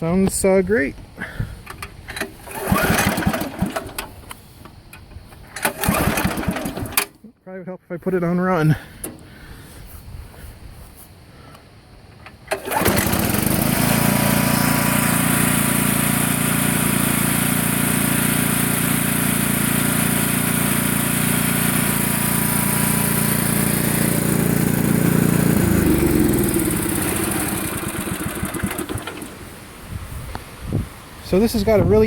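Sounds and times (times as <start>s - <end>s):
riding mower engine running: 1.7s - 7.2s, 12.1s - 30.6s.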